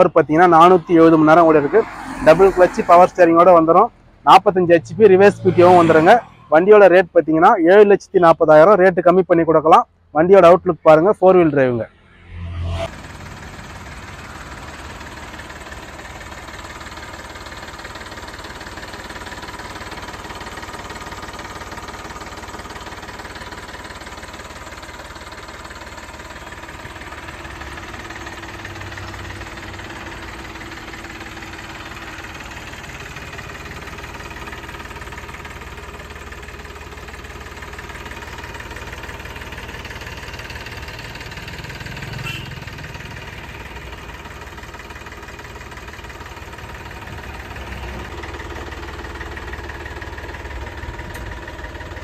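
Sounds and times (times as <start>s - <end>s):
tractor diesel engine idling: 0.0s - 11.5s, 12.9s - 52.0s.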